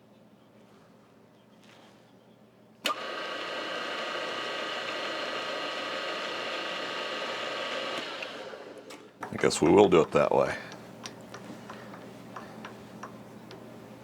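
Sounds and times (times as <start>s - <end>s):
electric motor whine: 2.8s - 9.1s.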